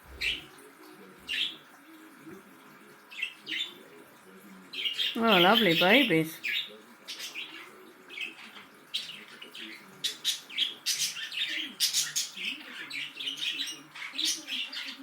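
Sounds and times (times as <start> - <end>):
budgerigars chirping: 0.0 - 0.5.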